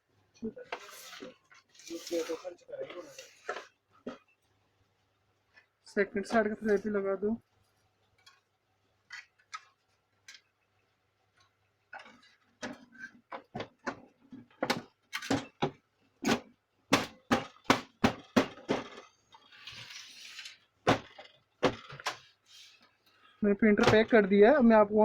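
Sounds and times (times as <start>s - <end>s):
plastic scraping rub: 0.6s - 3.8s, 19.0s - 23.0s.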